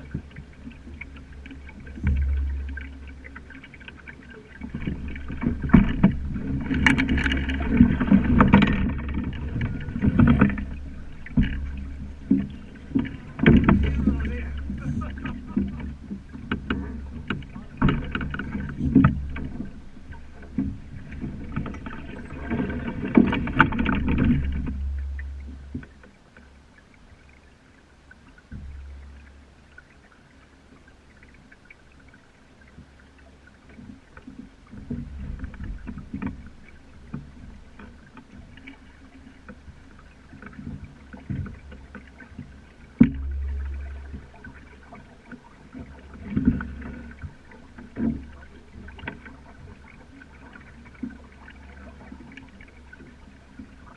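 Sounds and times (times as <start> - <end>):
water washing along hull: 0.0 - 53.9
knocks from boat fittings: 1.9 - 3.1.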